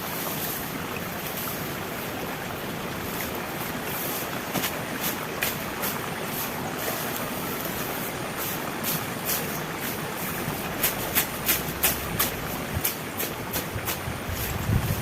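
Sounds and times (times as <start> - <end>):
heavy rain falling: 0.0 - 15.0
sharp taps of raindrops: 4.4 - 6.0, 8.8 - 14.1.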